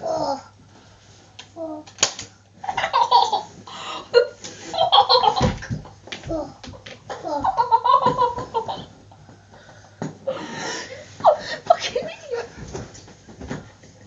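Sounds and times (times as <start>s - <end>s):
hearty laughter: 6.8s - 12.6s.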